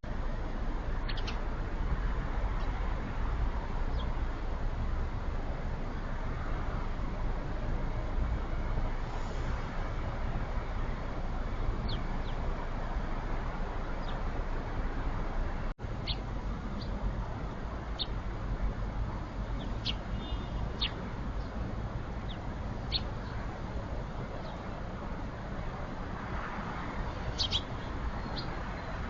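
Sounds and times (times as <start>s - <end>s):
small birds chirping: 1.0s - 1.6s, 3.8s - 4.2s, 11.8s - 12.5s, 13.8s - 14.3s, 15.9s - 25.8s, 26.9s - 29.0s.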